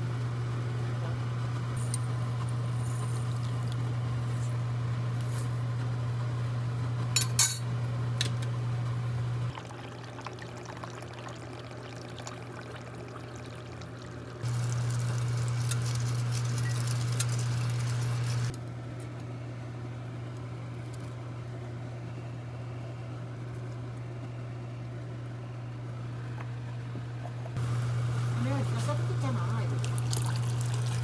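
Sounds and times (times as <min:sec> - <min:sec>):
liquid pouring and splashing: 0:09.5 - 0:18.5, 0:29.7 - 0:31.0.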